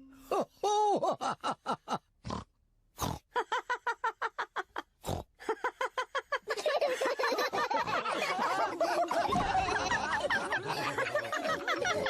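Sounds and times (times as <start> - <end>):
cartoon pigs snorting and laughing: 1.8 - 3.7, 4.6 - 12.0.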